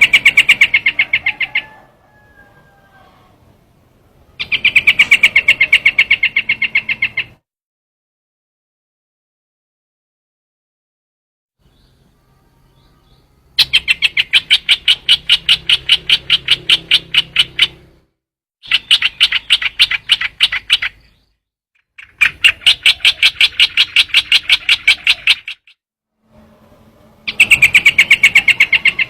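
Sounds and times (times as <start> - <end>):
bird chattering sharp notes: 0.0 - 1.8, 4.4 - 7.4, 13.6 - 17.9, 18.6 - 21.2, 21.9 - 25.8, 27.3 - 29.0.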